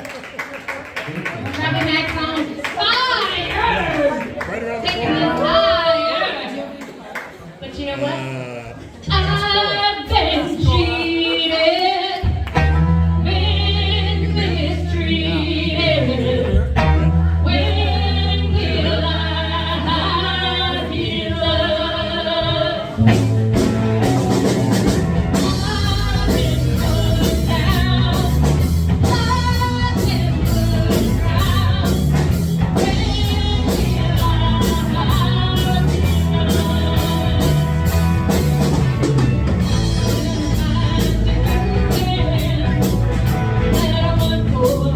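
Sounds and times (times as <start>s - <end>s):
person singing: 7.8s - 12.3s
held bass notes: 12.3s - 44.9s
drums with steady beat: 23.0s - 44.9s.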